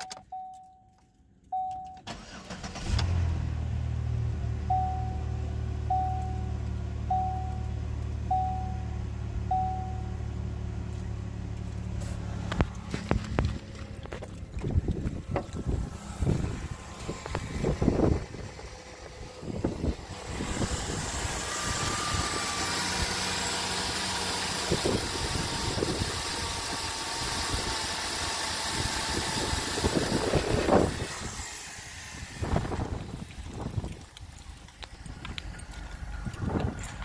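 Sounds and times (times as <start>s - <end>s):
car engine idling: 1.3s - 37.0s
footsteps on gravel: 11.0s - 15.9s, 33.1s - 37.0s.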